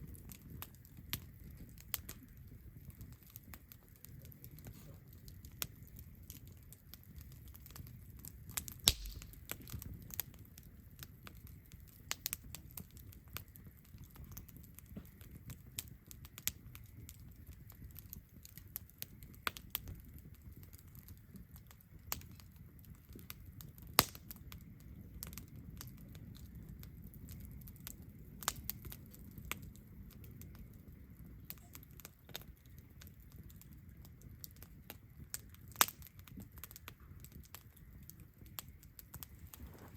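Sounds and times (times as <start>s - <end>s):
campfire crackling and popping: 0.0s - 39.9s
low steady rumble: 8.9s - 9.6s.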